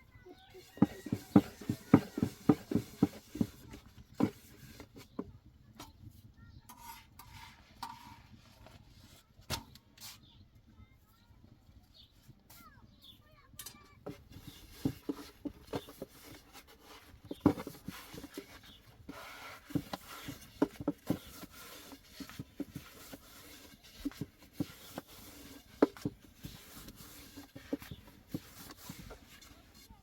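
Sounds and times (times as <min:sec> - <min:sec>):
faint rubbing: 0:00.4 - 0:05.2, 0:14.0 - 0:30.0.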